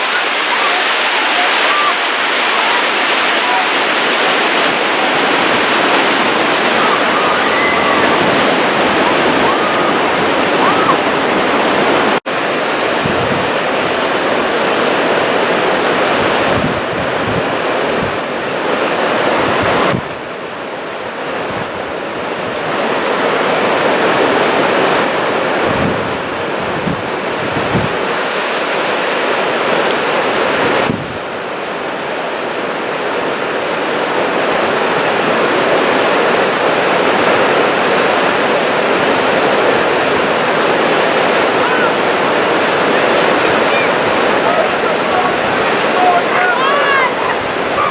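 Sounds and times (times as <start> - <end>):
river water rushing: 0.0 - 13.0, 28.0 - 47.9.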